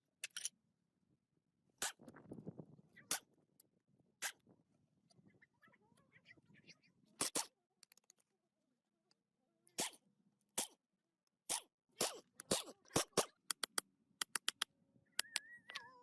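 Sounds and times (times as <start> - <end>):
sharp irregular clicks and knocks: 7.2 - 8.4, 10.6 - 15.8.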